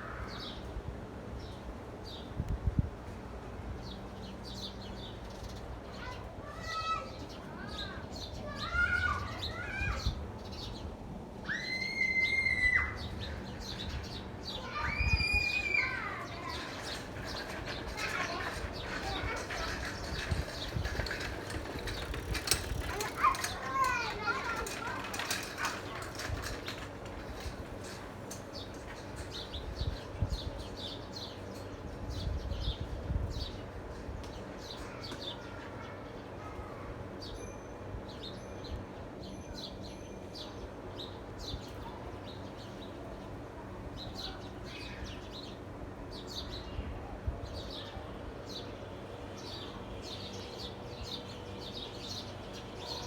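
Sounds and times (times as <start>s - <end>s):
birds calling: 11.5s - 36.3s.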